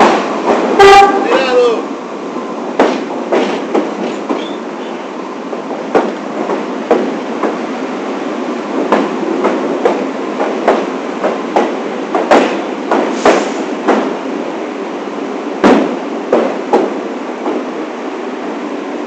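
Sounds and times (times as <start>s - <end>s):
subway train rumbling: 0.0s - 19.0s
train wheel clicks: 2.8s - 4.6s, 5.6s - 7.6s, 8.6s - 14.2s.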